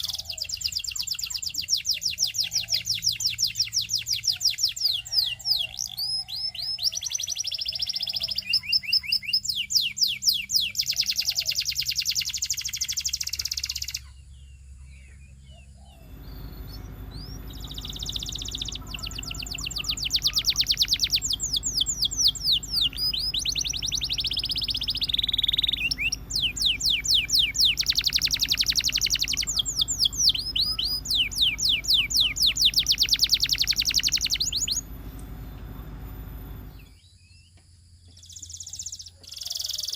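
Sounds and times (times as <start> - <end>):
canary singing: 0.0 - 37.0, 38.2 - 39.9
low steady hum: 14.0 - 38.2.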